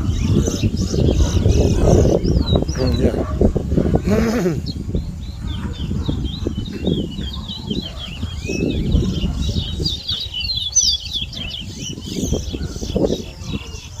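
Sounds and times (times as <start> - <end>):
finch singing fast chirps: 0.0 - 3.4, 4.4 - 14.0.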